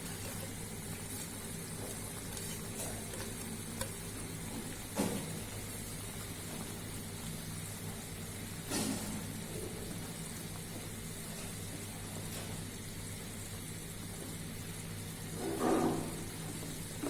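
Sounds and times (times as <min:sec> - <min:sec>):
curry simmering hiss: 0:00.0 - 0:17.0
steady hum: 0:00.0 - 0:17.0.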